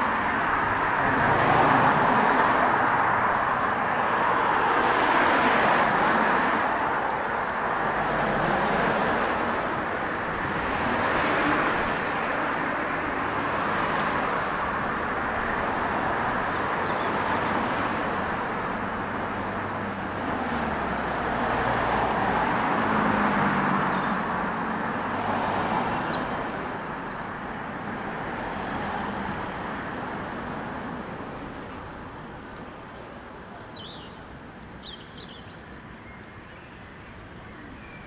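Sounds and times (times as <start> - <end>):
birds chirping: 33.2 - 38.0.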